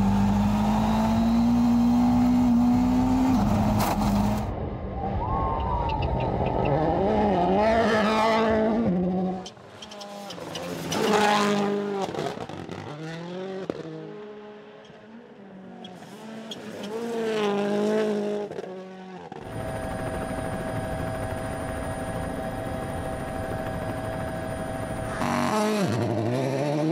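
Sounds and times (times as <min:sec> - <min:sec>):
rally cars passing at speed: 0:06.0 - 0:19.4, 0:25.1 - 0:26.9.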